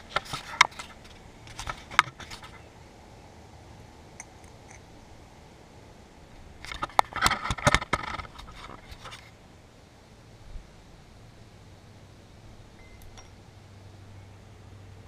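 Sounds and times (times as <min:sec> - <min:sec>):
metal tools clicking and scraping: 0:12.8 - 0:13.4.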